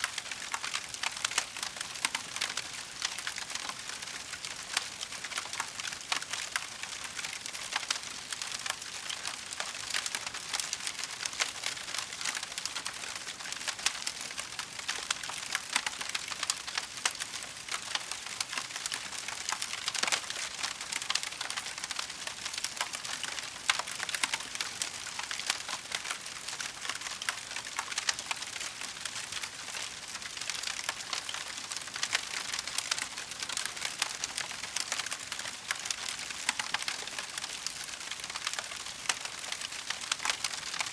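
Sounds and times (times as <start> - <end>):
wood fire crackling: 0.1 - 40.9.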